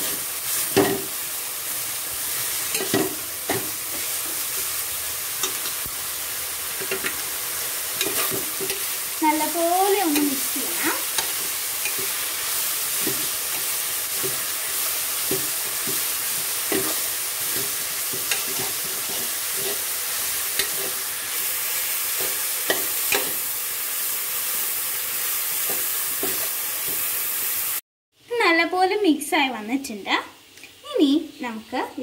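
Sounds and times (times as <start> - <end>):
greens sizzling in oil: 0.0 - 32.0.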